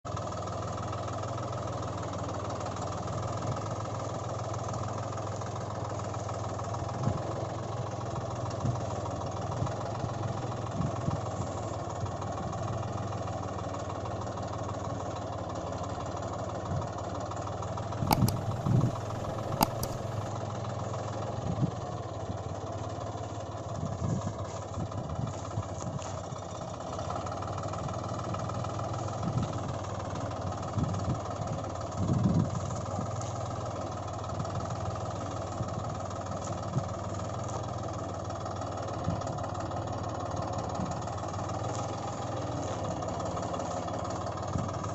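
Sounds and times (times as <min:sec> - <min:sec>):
engine idling: 0:00.1 - 0:44.9
sharp clicks: 0:18.0 - 0:20.2.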